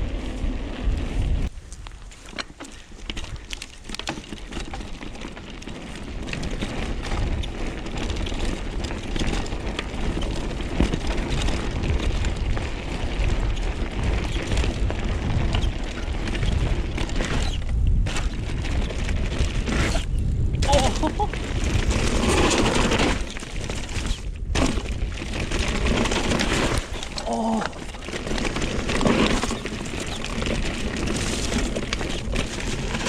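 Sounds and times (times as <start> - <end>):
wind buffeting microphone: 0.0 - 2.0, 9.5 - 33.0
bike tyres on gravel trail: 0.0 - 33.0
stones and bike clattering: 0.1 - 33.0.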